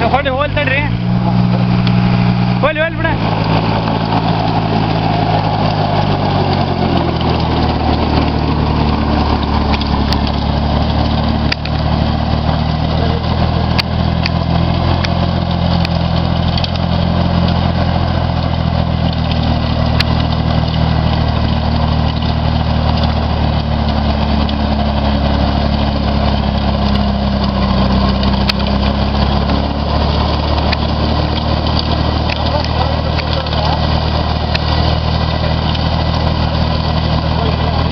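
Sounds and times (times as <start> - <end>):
tractor engine running: 0.0 - 37.9
sharp clicks: 2.6 - 11.8.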